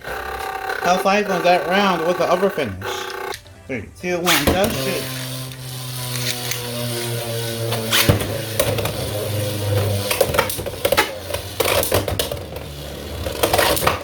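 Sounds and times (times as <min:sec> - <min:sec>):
spinning tops whirring: 0:00.0 - 0:14.0
spinning tops clacking together: 0:04.2 - 0:14.0.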